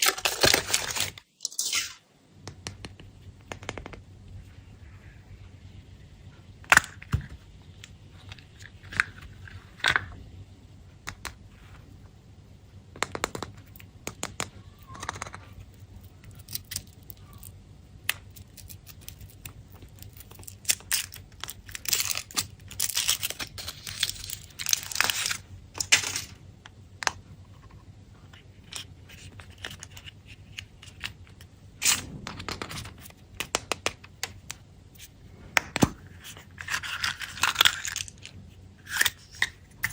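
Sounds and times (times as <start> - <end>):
candy wrappers crinkling: 0.0 - 1.9, 16.0 - 26.3, 28.3 - 34.4, 35.8 - 39.9.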